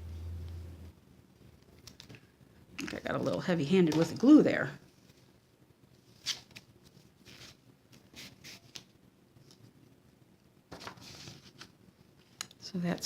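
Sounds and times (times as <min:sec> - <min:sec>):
paper rustling and tapping: 0:10.7 - 0:11.7.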